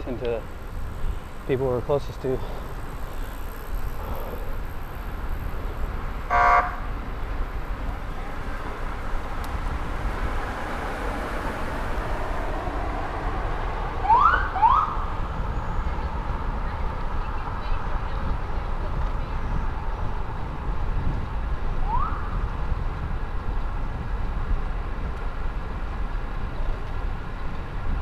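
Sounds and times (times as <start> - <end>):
bike rolling noise: 0.0 - 28.0
wind: 0.0 - 28.0
horn honk: 6.3 - 7.0.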